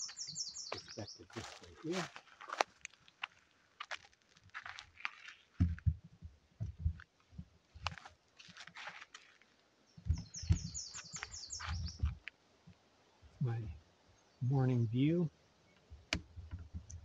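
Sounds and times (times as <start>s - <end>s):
bird's high-pitched trill: 0.0s - 1.2s, 10.2s - 12.0s
footsteps crunching: 0.0s - 6.0s, 7.8s - 12.2s.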